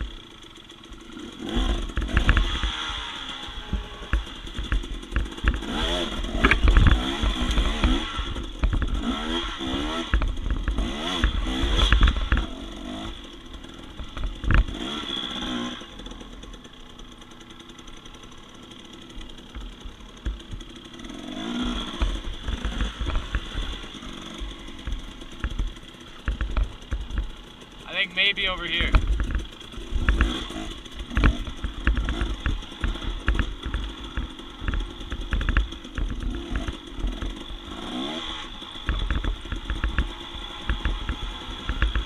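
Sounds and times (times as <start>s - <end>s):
dirt bike engine revving: 0.0s - 42.0s
knocks and clatter: 3.6s - 15.0s, 19.1s - 27.8s, 28.8s - 42.0s.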